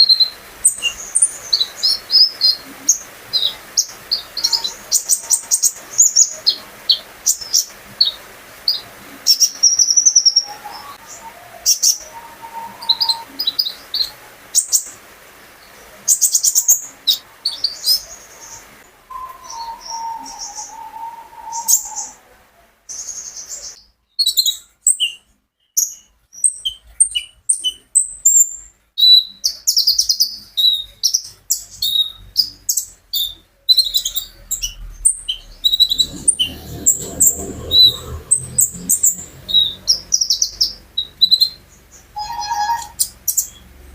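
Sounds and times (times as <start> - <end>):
sunbird singing: 0.0 - 15.0, 15.7 - 22.3, 29.1 - 43.9
lower drawn-out whistle: 11.1 - 13.4, 19.1 - 22.3
low rumble: 34.1 - 42.2.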